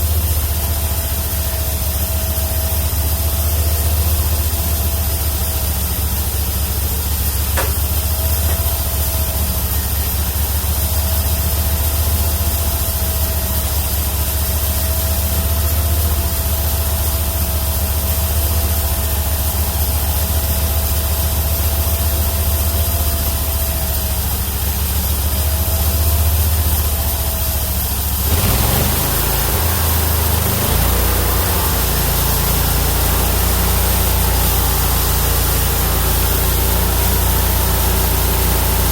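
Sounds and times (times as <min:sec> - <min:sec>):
sawmill engine running under load: 0:00.0 - 0:38.9
thin steady whine: 0:00.0 - 0:38.9
band saw blade cutting log: 0:07.2 - 0:10.2, 0:24.9 - 0:38.9.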